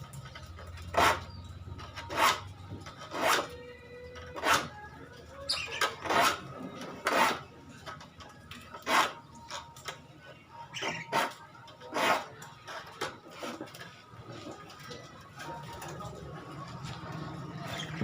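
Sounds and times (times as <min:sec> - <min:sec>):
file rasping on saw teeth: 0:10.8 - 0:12.3.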